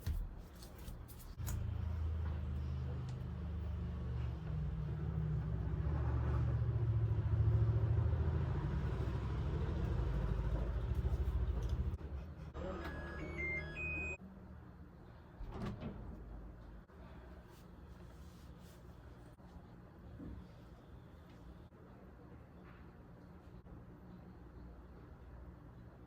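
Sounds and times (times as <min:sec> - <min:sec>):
high electronic beeps: 0:12.8 - 0:14.2.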